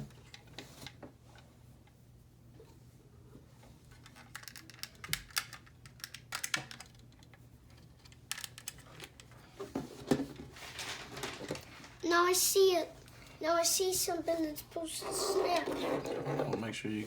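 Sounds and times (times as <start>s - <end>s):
plastic model parts clicking: 4.0s - 7.3s, 8.1s - 9.3s.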